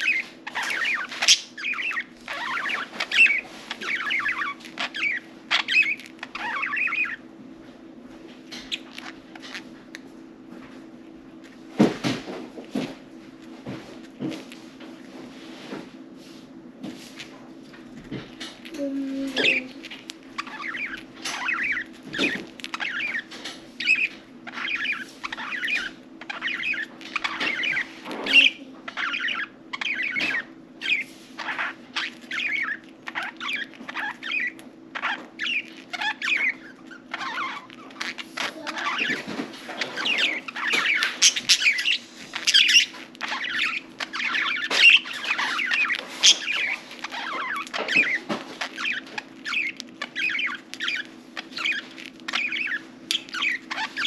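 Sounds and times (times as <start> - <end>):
budgerigars chattering: 0.0 - 7.2, 19.3 - 54.0.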